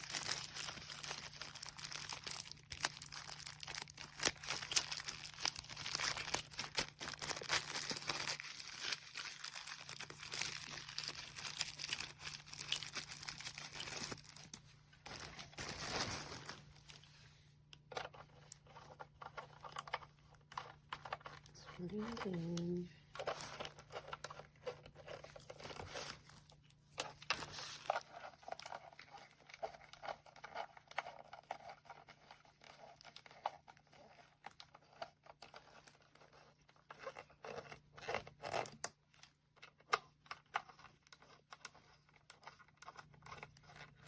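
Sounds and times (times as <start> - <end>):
plastic packaging crinkling: 0.0 - 17.1, 19.2 - 30.6.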